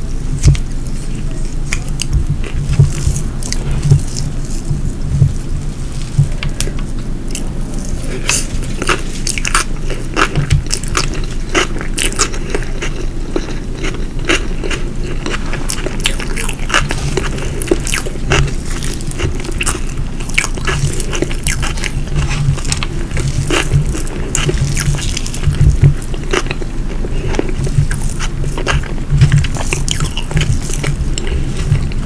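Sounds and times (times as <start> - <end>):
chewing and crunching food: 0.0 - 32.0.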